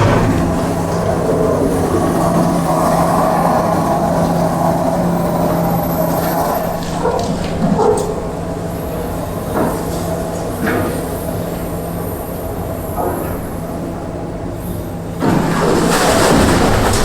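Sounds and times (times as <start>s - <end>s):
mechanical grinding: 0.0s - 2.1s
excavator diesel engine hum: 0.0s - 17.0s.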